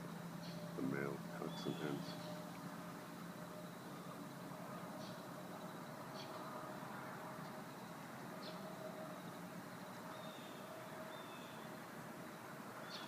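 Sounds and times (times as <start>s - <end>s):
faint steady hum: 0.0s - 13.0s
high bird chirps: 1.4s - 2.5s.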